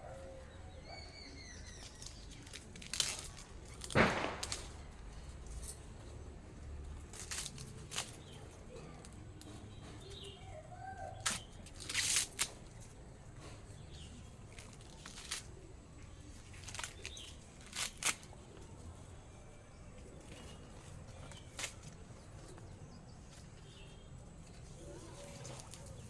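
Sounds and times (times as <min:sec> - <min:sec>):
faint bird chirps: 0:00.0 - 0:02.5
corn plants rustling and snapping: 0:01.8 - 0:05.6, 0:07.0 - 0:09.5, 0:11.2 - 0:13.0, 0:14.4 - 0:15.7, 0:16.4 - 0:18.4, 0:21.2 - 0:22.6.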